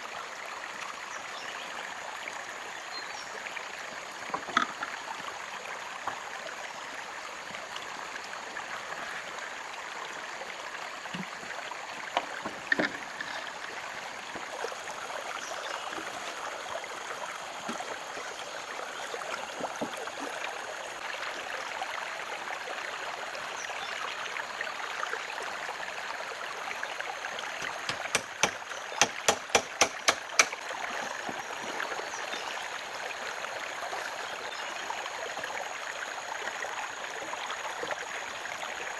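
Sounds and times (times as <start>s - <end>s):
running water rushing: 0.0s - 38.9s
sharp knocks: 27.6s - 30.6s.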